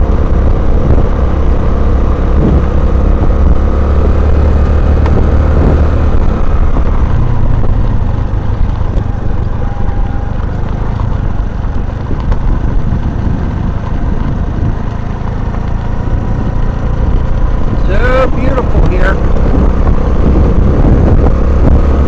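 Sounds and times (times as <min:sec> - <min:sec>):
small motorcycle engine running: 0:00.0 - 0:22.0
tyres rolling over gravel: 0:05.9 - 0:19.5.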